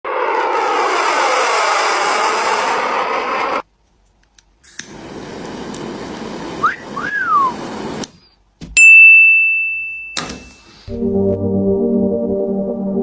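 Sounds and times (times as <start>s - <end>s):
click: 4.2s - 4.9s
hissing: 4.7s - 8.1s
wolf whistle: 6.6s - 7.6s.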